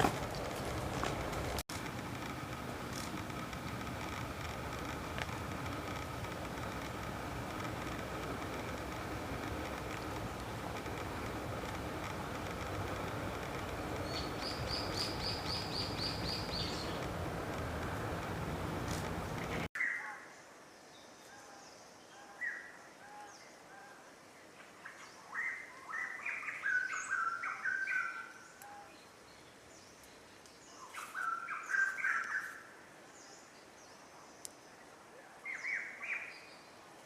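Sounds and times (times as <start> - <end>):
birds chirping and squawking: 13.4 - 18.0.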